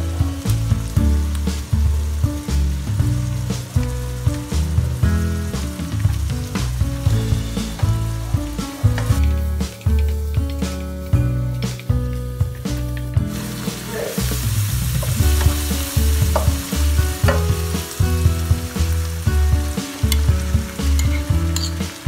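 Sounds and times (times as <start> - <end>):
onions sizzling in a wok: 0.0 - 22.0
spoon clinking against bowl: 21.0 - 21.8.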